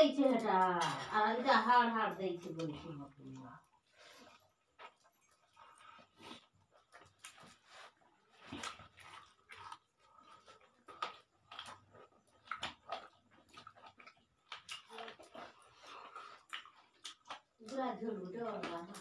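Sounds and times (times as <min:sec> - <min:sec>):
people chewing and lip-smacking: 0:02.5 - 0:19.0.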